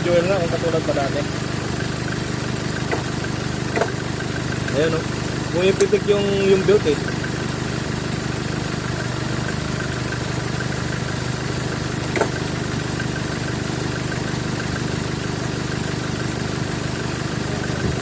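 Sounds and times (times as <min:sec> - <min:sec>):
car engine idling: 0:00.0 - 0:18.0
faint regular ticking: 0:00.0 - 0:18.0
sharp click: 0:12.1 - 0:12.4.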